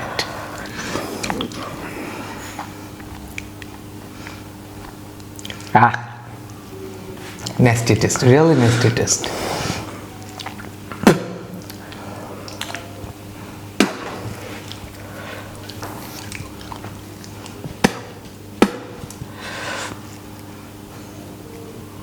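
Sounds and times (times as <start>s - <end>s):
person chewing radish: 0.0s - 6.6s, 7.2s - 20.8s
steady low hum: 0.0s - 22.0s.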